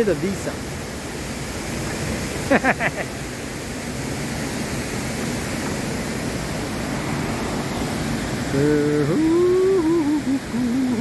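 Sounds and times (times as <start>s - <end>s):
waterfall roaring: 0.0s - 11.0s
person singing a long note: 8.5s - 11.0s.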